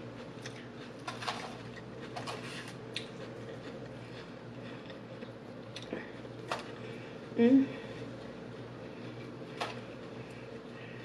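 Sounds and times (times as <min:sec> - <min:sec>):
chewing salad: 0:00.1 - 0:06.9.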